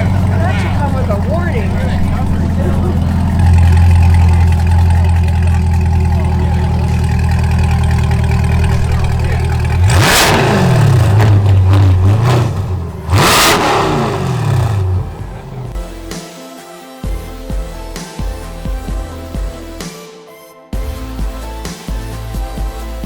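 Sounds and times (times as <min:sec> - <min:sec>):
car engine idling and revving: 0:00.0 - 0:16.2.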